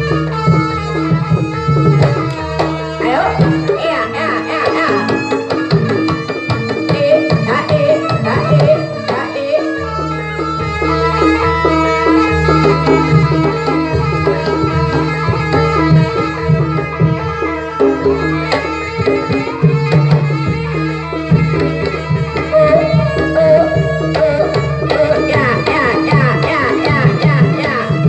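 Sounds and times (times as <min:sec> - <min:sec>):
wavering higher melody: 0:00.0 - 0:28.0
hand drums in quick rhythm: 0:00.4 - 0:09.3
metallophone notes: 0:01.7 - 0:27.4
low held tone: 0:22.5 - 0:25.6.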